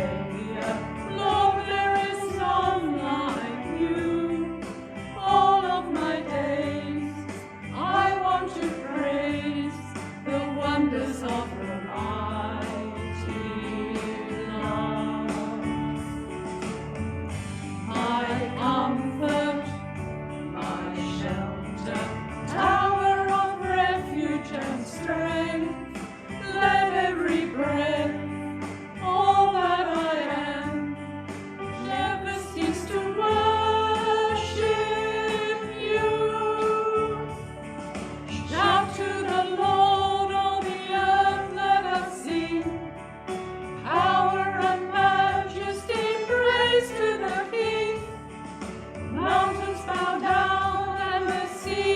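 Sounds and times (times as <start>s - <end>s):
group singing a hymn: 0.0s - 15.9s, 17.7s - 19.9s, 20.5s - 31.0s, 31.7s - 37.4s, 38.3s - 51.9s
musical accompaniment: 0.0s - 51.9s.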